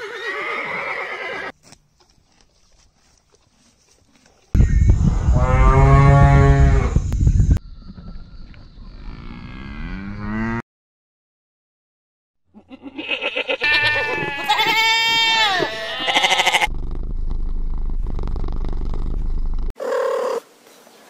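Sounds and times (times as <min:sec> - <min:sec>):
goat bleating: 0:12.6 - 0:16.7.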